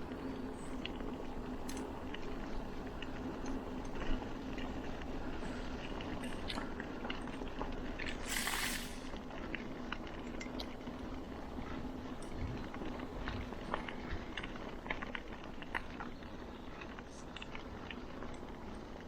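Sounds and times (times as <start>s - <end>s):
bicycle clicks and rattles: 0.8s - 2.3s
bicycle tyre noise: 7.8s - 19.0s
loud hiss: 8.2s - 9.1s.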